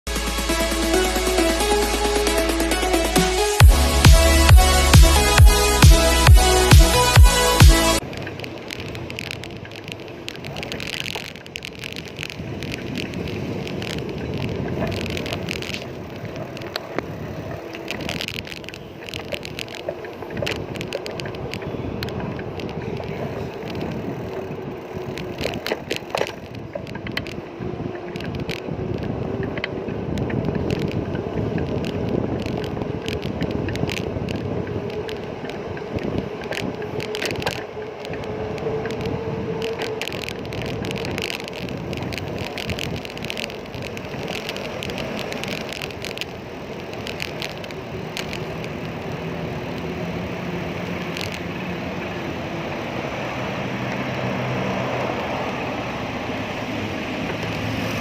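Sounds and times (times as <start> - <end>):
bicycle tyres rumbling on road: 8.0 - 58.0
bike clicks and rattles: 8.0 - 58.0
wind on microphone: 12.0 - 58.0.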